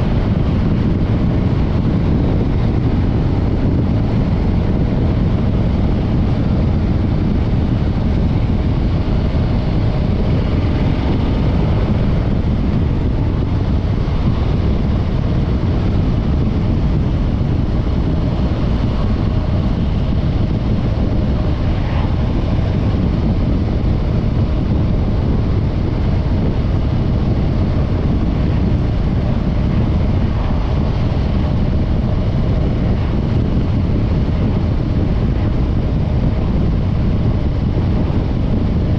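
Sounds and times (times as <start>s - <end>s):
motorcycle engine running: 0.0s - 38.9s
wind on microphone: 0.0s - 38.9s.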